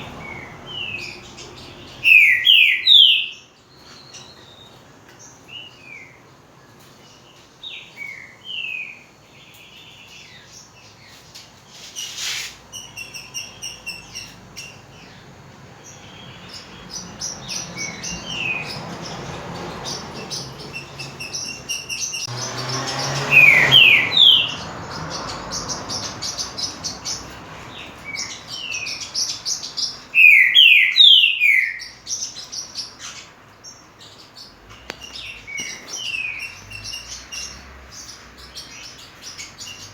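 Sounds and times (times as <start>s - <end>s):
bird singing whistled phrases: 2.0s - 3.4s, 30.2s - 32.0s
soft bird chattering: 15.9s - 22.3s.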